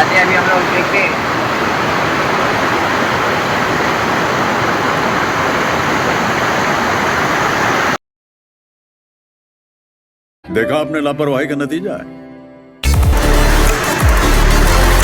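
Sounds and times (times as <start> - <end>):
waterfall rushing: 0.0 - 8.0, 12.8 - 15.0.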